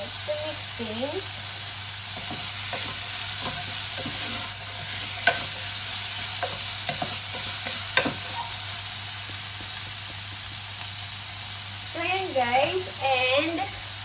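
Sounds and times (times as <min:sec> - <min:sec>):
food sizzling in a pan: 0:00.0 - 0:14.0
utensil scraping a pan: 0:02.2 - 0:08.7.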